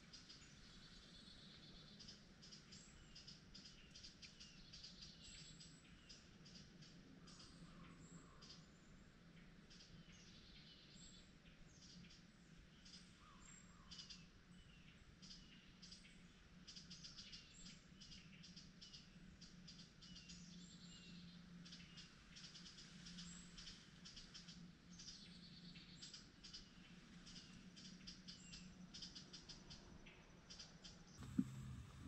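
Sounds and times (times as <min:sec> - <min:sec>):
faint low hum: 0:31.1 - 0:32.0
birds chirping: 0:31.2 - 0:32.0.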